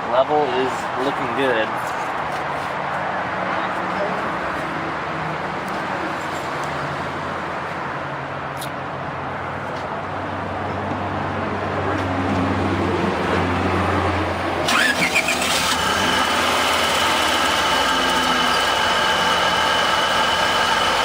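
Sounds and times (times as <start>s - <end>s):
car engine starting and running: 11.2s - 21.0s.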